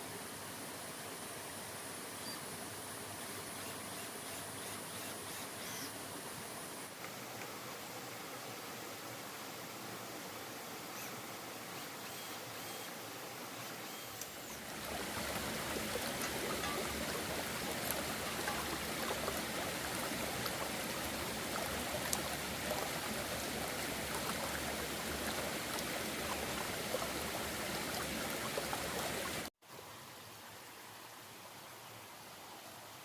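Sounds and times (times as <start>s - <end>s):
quiet hiss: 0.0s - 33.0s
running water rushing: 6.0s - 31.2s.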